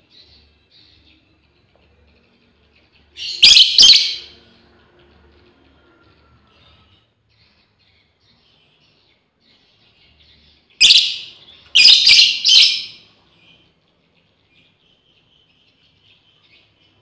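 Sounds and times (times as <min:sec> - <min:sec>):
shrill lovebird calls: 0:03.2 - 0:04.3, 0:10.8 - 0:13.0.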